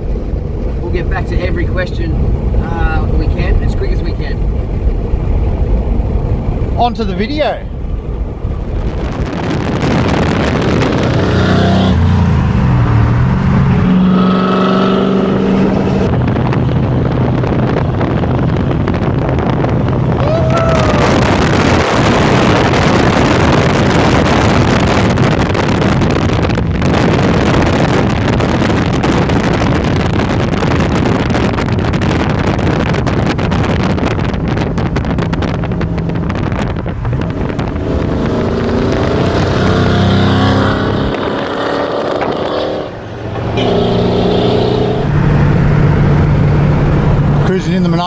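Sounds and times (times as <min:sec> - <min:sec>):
car engine at speed: 0:00.0 - 0:48.0
wind and road noise: 0:00.0 - 0:48.0.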